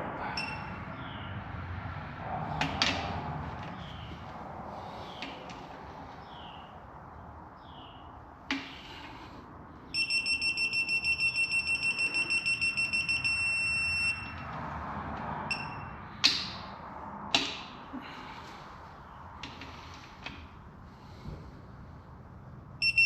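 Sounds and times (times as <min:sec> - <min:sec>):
torque wrench beeping: 0:00.4 - 0:00.7, 0:09.9 - 0:14.4, 0:15.5 - 0:15.9, 0:22.8 - 0:23.0.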